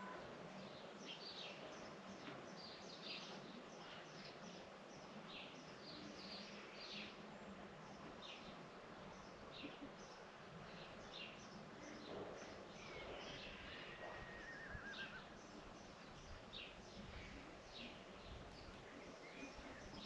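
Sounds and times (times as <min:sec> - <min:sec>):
background hiss: 0:00.0 - 0:20.0
wavering bird call: 0:13.5 - 0:15.2.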